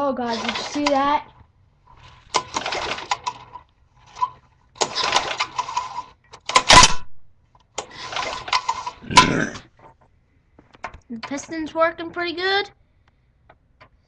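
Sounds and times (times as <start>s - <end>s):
lawn mower engine turning over: 0.2s - 1.2s, 1.9s - 6.9s, 7.8s - 9.9s
starter cord pulled: 2.3s - 7.0s, 7.8s - 9.0s.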